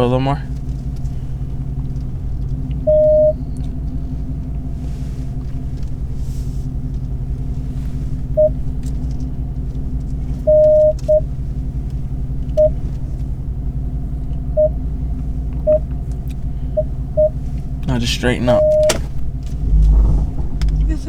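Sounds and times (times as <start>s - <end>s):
car engine and road rumble: 0.0s - 21.0s
long electronic beep: 2.9s - 3.4s, 10.5s - 11.2s, 14.6s - 14.8s, 18.5s - 19.0s
short electronic beeps: 2.9s - 3.4s, 8.4s - 8.6s, 10.5s - 11.2s, 14.6s - 14.8s, 15.7s - 15.9s, 18.5s - 19.0s.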